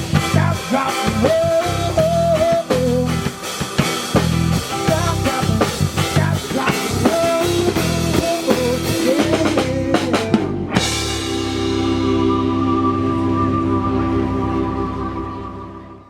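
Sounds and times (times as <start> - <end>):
drum kit: 0.0 - 14.8
guitar playing rhythmic groove: 0.0 - 16.0
rock band music: 0.0 - 16.0
sustained chords: 10.5 - 16.0.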